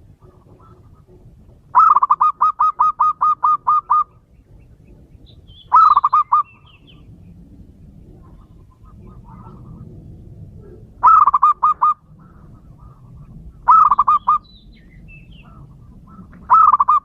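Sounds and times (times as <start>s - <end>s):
dove cooing: 0.0s - 17.0s.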